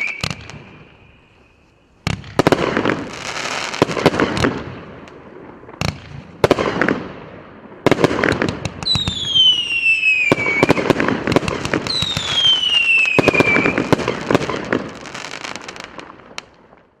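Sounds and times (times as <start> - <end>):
long falling whistles: 0.0 - 2.0, 8.8 - 10.8, 11.9 - 13.8
fireworks bangs: 0.0 - 17.0
fireworks crackling: 0.0 - 17.0.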